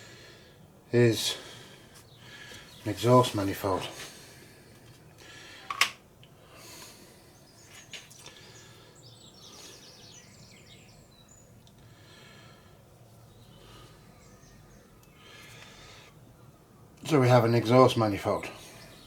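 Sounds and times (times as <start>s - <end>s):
bird chirping: 7.3s - 11.7s, 13.2s - 19.0s.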